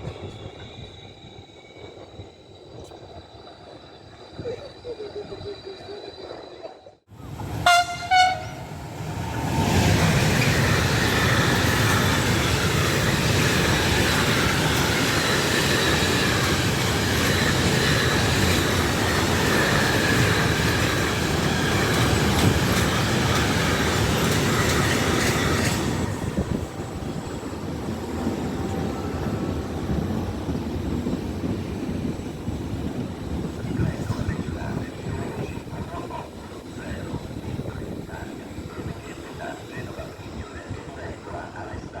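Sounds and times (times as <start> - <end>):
train wheels rushing on rails: 7.2 - 42.0
train horn blasts: 7.6 - 8.7.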